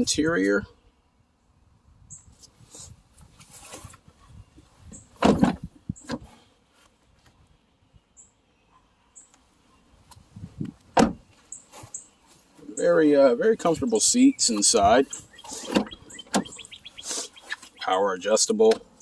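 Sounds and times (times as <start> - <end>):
handling and rustling: 2.4 - 7.4, 10.0 - 12.7.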